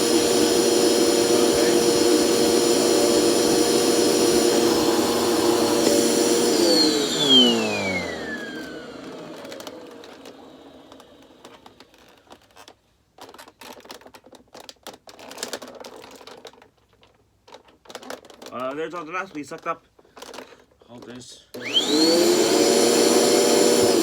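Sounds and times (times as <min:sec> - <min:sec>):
vacuum motor spinning down: 0:00.0 - 0:12.1, 0:21.6 - 0:24.0
handheld vacuum whining: 0:00.0 - 0:12.5, 0:21.5 - 0:24.0
clicks and knocks of plastic handling: 0:10.9 - 0:21.2.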